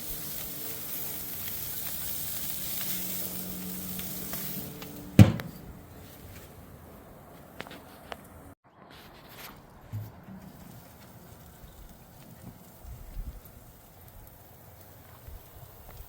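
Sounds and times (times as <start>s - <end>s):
food sizzling: 0.0s - 6.4s, 10.0s - 16.0s
sharp knock: 5.2s - 5.7s.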